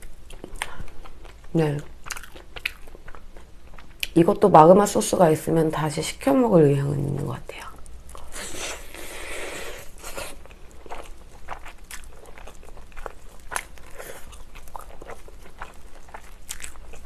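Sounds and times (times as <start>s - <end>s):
chewing with crunches: 0.0s - 4.2s, 7.8s - 17.0s.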